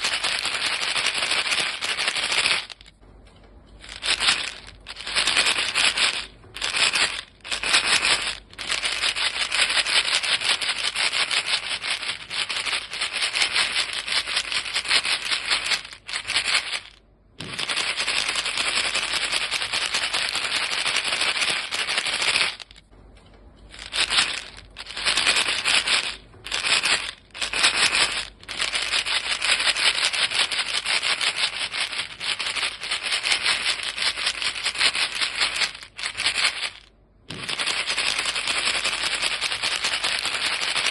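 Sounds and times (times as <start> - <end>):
gum pellets rattling in a box: 0.0 - 3.0, 3.8 - 22.9, 23.7 - 40.9.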